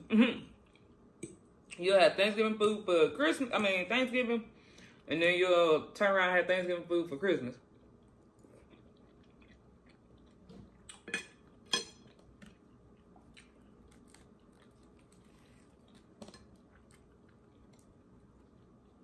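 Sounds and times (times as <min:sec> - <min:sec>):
chewing: 0:07.6 - 0:19.0.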